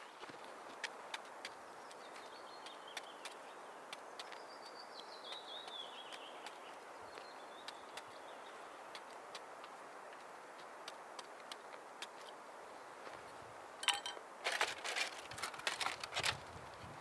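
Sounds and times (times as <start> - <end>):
faint background noise: 0.0 - 17.0
bird singing: 1.4 - 9.1.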